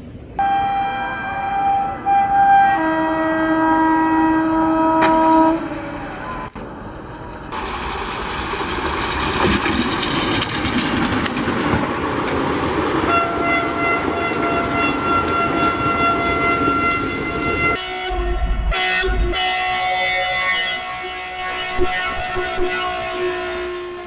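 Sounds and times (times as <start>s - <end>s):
train horn long blast: 0.4s - 6.6s, 13.0s - 24.0s
train wheels rolling on rails: 4.9s - 17.8s.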